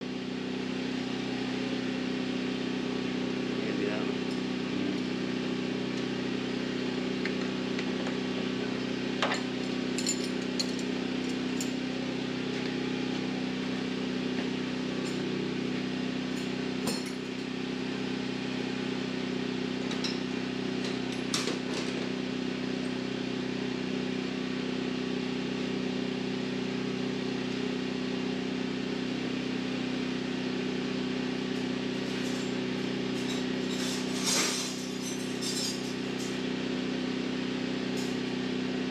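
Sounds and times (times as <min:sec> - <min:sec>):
low mechanical hum: 0:00.0 - 0:38.9
hand tools clinking on metal: 0:09.2 - 0:11.8, 0:32.0 - 0:36.4.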